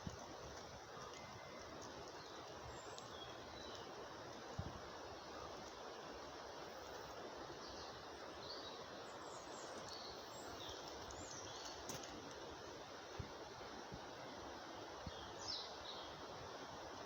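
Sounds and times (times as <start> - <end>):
small birds chirping: 0.0 - 12.7, 15.0 - 16.7
outdoor background noise: 0.0 - 17.0.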